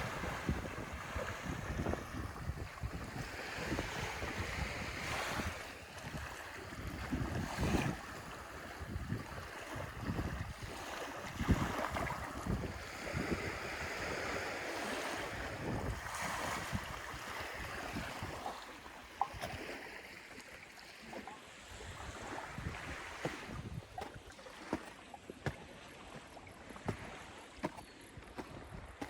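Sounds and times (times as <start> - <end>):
wind gusting against microphone: 0.0 - 18.5, 21.7 - 24.3
waves washing onto beach: 0.0 - 29.0.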